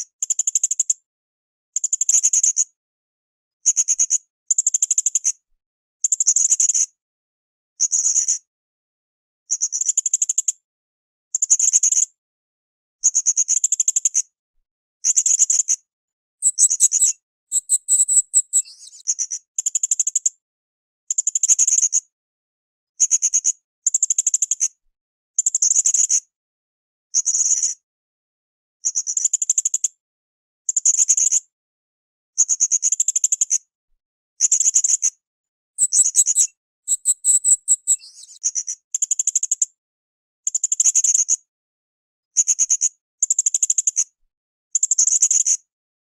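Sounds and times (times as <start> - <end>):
parrot trilling calls: 16.5 - 18.7, 35.8 - 38.0.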